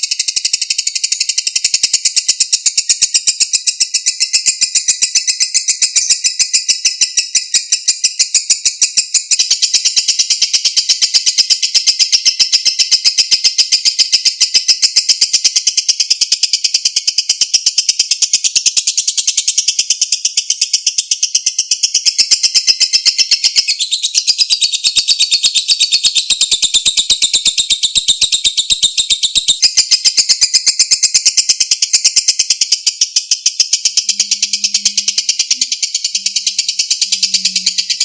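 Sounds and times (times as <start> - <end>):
lovebird chattering trill: 0.0 - 38.0.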